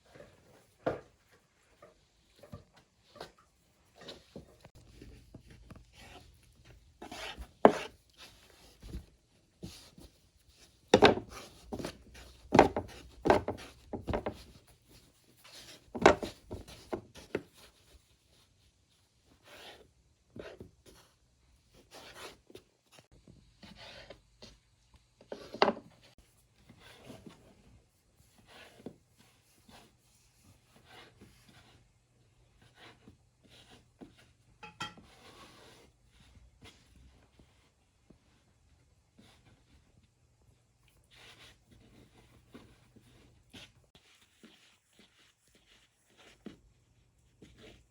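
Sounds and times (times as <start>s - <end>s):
knocking and rubbing of wood: 10.9s - 14.6s.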